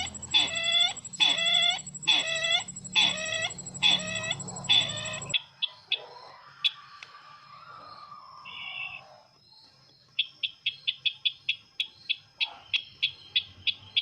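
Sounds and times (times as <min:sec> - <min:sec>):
bird clucking calls: 0:00.0 - 0:05.4
faint short chirps: 0:00.0 - 0:05.4.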